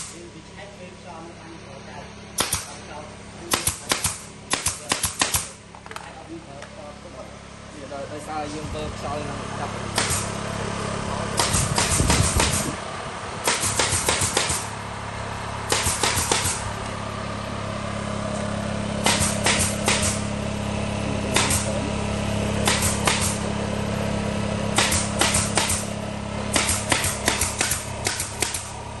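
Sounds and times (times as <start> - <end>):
compressor motor humming: 0.0 - 29.0
air tool firing sharp clicks: 2.4 - 2.8, 3.5 - 5.6, 9.9 - 10.4, 11.4 - 12.8, 13.4 - 14.7, 15.7 - 16.7, 19.0 - 20.3, 21.3 - 21.8, 22.6 - 23.5, 24.7 - 25.9, 26.5 - 28.8.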